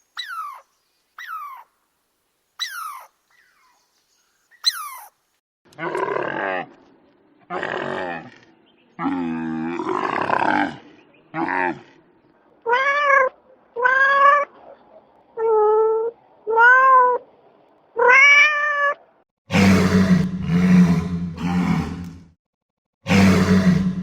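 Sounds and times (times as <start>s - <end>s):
cat meowing: 12.7s - 14.5s, 15.4s - 17.2s, 18.0s - 19.0s.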